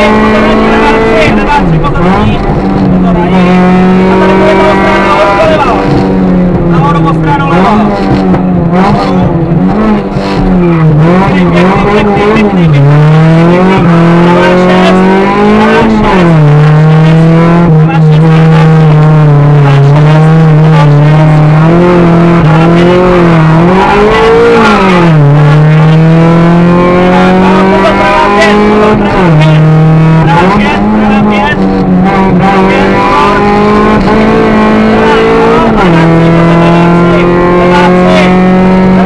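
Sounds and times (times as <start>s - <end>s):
car engine revving high: 0.0s - 39.0s.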